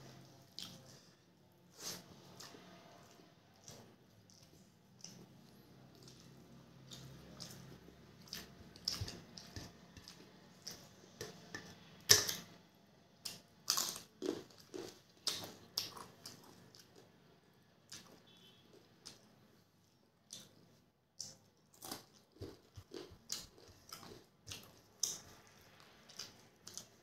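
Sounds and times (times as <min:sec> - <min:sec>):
chewing and mouth clicks: 0:00.1 - 0:01.1, 0:01.8 - 0:12.4, 0:17.9 - 0:18.4, 0:20.2 - 0:27.0
crisp food crunching: 0:21.7 - 0:25.2.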